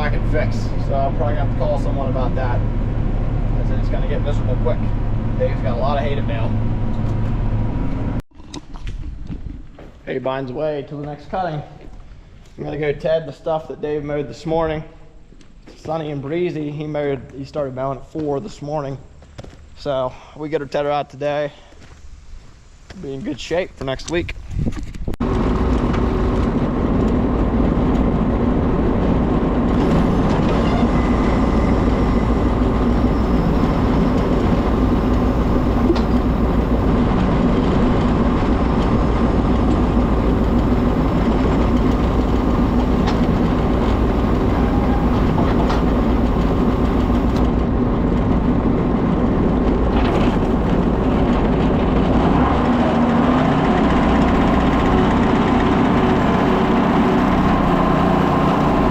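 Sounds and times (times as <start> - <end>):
tractor engine running: 0.0 - 8.2, 25.2 - 58.9.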